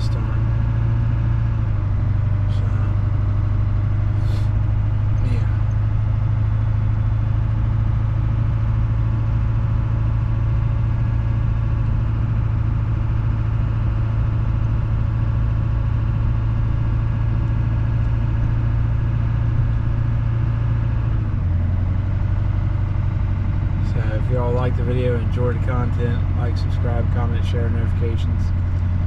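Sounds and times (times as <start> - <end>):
diesel engine running steadily: 0.0 - 29.0.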